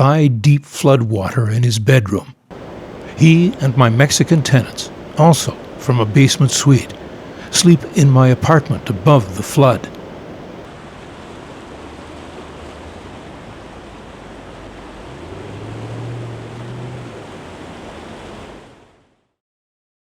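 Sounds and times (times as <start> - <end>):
low hum: 2.5 - 10.7
rushing floodwater roar: 2.5 - 19.2.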